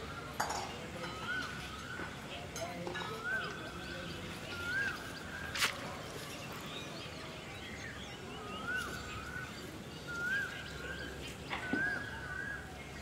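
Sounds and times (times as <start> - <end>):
outdoor background noise: 0.0 - 13.0
whistled bird call: 1.0 - 2.1, 3.0 - 6.0, 7.8 - 13.0.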